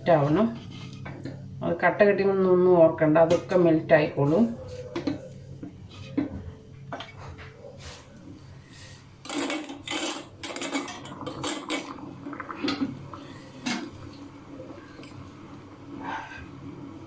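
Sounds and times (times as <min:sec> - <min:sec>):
spoon scraping a pan: 0:00.2 - 0:01.4, 0:04.2 - 0:15.3.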